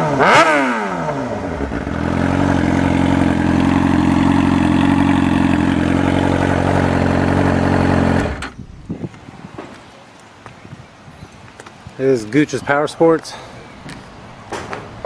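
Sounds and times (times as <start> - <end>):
motorcycle engine revving: 0.0 - 8.6.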